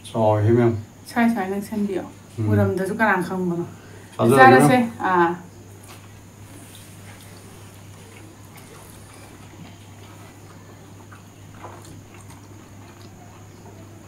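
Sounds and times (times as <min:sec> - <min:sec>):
people chewing meat: 0:05.7 - 0:14.0.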